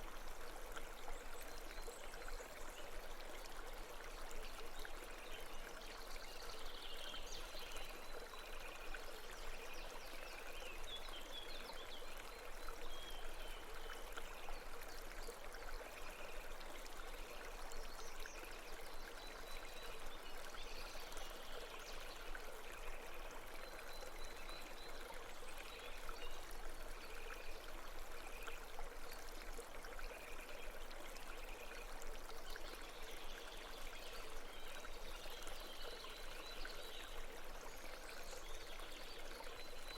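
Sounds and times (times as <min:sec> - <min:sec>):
babbling brook: 0:00.0 - 0:39.9.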